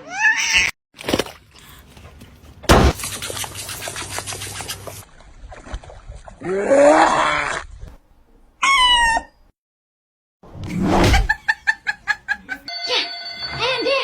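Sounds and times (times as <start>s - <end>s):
high-pitched animal squeal: 8.6s - 9.4s.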